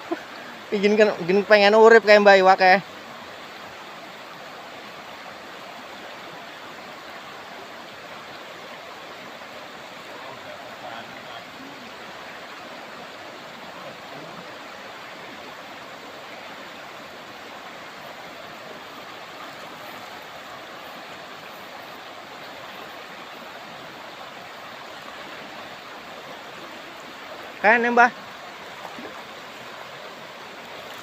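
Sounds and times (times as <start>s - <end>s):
shallow river babbling: 0.0s - 31.0s.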